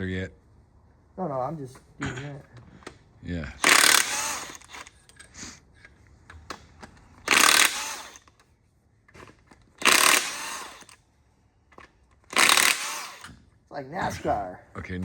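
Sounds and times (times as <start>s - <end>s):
impact wrench zipping: 3.6s - 5.4s, 7.0s - 8.4s, 9.2s - 11.0s, 12.2s - 13.5s.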